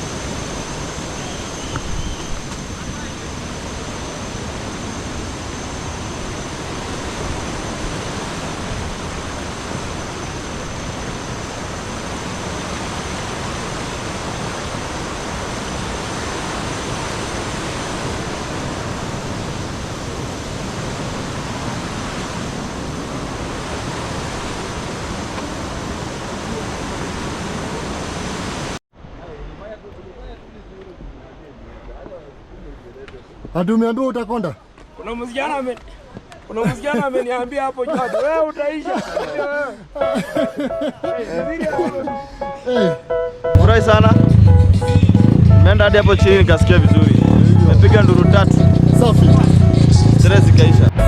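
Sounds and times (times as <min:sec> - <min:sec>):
waterfall roaring: 0:02.5 - 0:28.8, 0:40.0 - 0:51.0.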